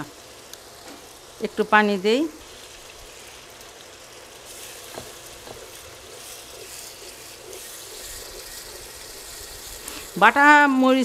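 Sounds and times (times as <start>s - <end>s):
masala sizzling in oil: 0.0s - 11.0s
spatula stirring: 2.4s - 11.0s.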